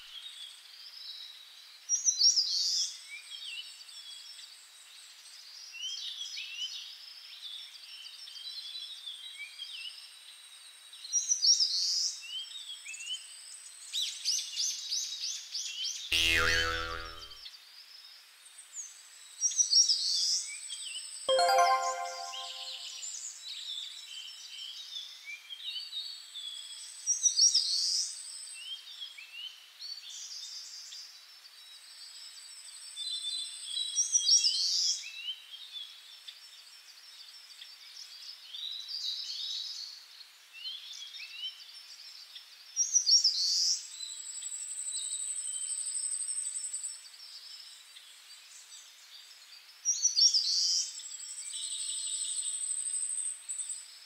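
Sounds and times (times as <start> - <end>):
high bird trill: 16.1 - 17.3.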